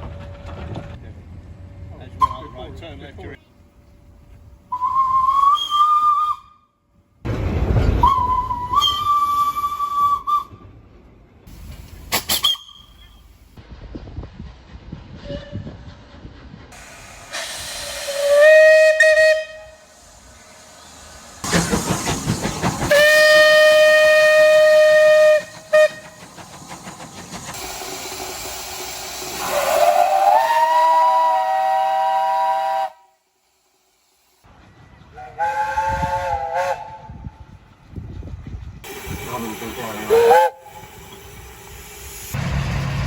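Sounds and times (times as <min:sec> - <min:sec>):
steam locomotive whistle blasts: 0:04.7 - 0:06.6, 0:08.0 - 0:10.6, 0:12.3 - 0:13.2, 0:17.2 - 0:21.0, 0:22.9 - 0:26.2, 0:29.4 - 0:33.2, 0:35.1 - 0:37.3, 0:39.8 - 0:41.0
steam hiss: 0:15.9 - 0:34.5, 0:38.8 - 0:43.0.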